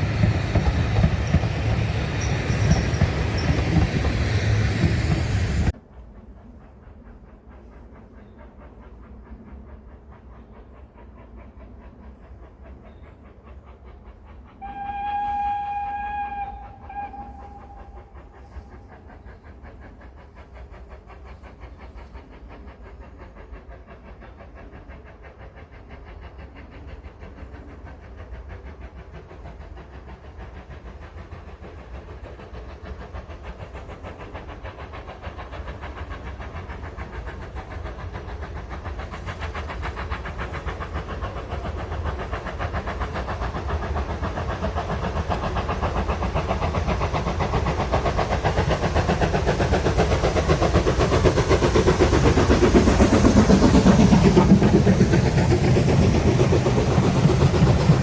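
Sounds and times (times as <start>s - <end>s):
train running noise: 0.0s - 58.0s
train whistle: 14.6s - 18.8s.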